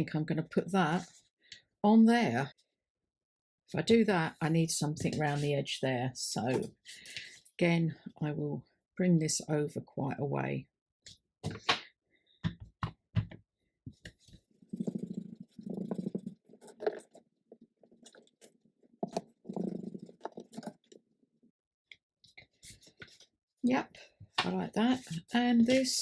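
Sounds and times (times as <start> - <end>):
paper rasping: 14.7 - 17.2.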